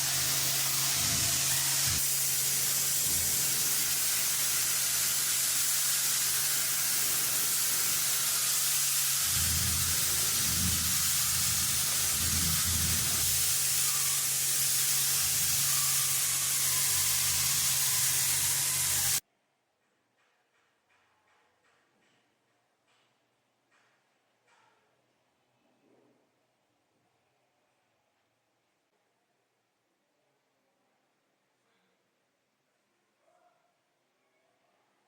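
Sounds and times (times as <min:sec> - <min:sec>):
paint spraying hiss: 0:00.0 - 0:19.2.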